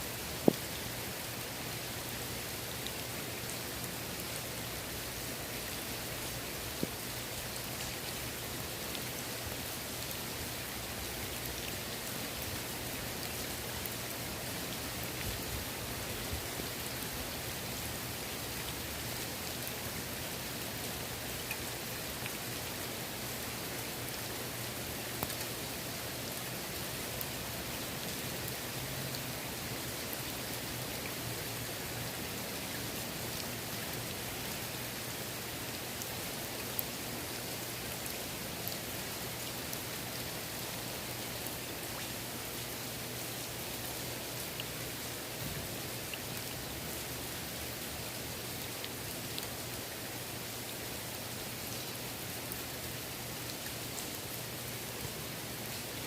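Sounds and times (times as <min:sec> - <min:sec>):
rain falling on pool water: 0:00.0 - 0:56.0.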